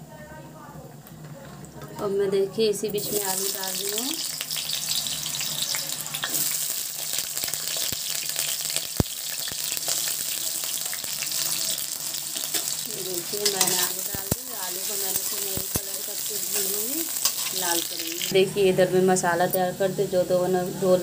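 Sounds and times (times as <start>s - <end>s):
potatoes sizzling in hot oil: 2.9s - 18.4s.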